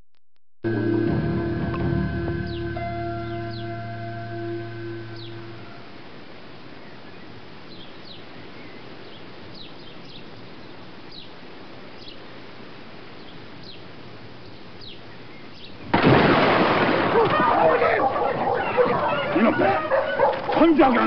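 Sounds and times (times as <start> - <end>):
bird chirping: 1.7 - 5.8, 6.8 - 11.4, 14.4 - 15.9
sudden loud burst: 15.9 - 17.6.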